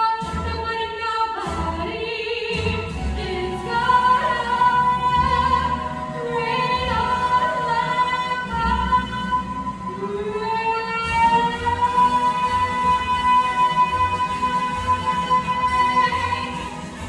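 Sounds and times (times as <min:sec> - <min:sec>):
instrumental accompaniment: 0:00.0 - 0:17.0
woman singing show tune: 0:00.0 - 0:17.0.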